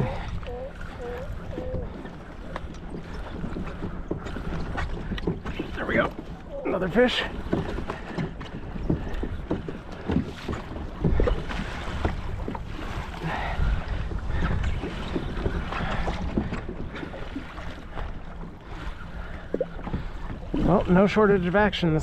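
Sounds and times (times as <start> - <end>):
water sloshing against kayak: 0.0 - 22.0
wind buffeting microphone: 0.0 - 22.0.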